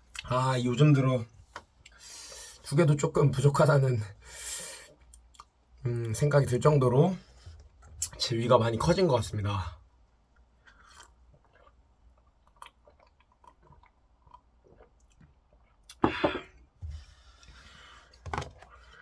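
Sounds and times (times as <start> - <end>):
person chewing noodles: 10.4 - 16.0.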